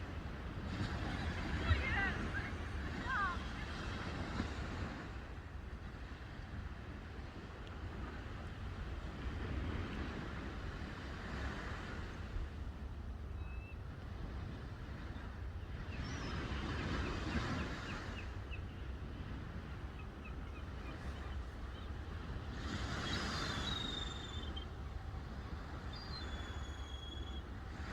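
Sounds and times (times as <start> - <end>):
sea waves washing ashore: 0.0 - 27.9
high bird chirps: 25.9 - 27.4.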